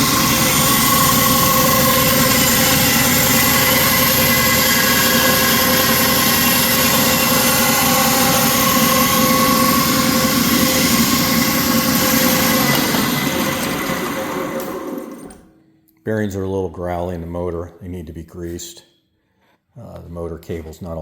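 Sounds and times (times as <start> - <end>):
table saw running: 0.0 - 15.5.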